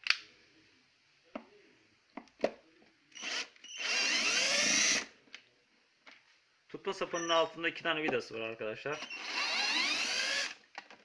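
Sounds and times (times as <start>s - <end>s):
electric screwdriver motor running: 3.2s - 5.1s, 9.0s - 10.6s.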